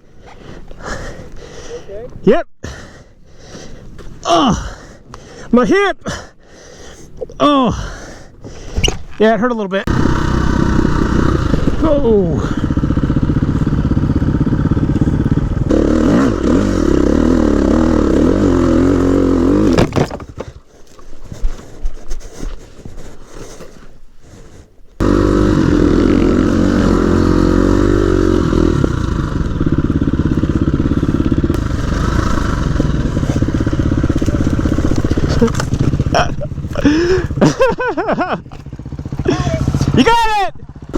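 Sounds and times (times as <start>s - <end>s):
dirt bike engine revving: 9.8s - 20.0s, 25.0s - 40.9s
knocks and scrapes: 19.0s - 24.0s, 31.1s - 36.8s.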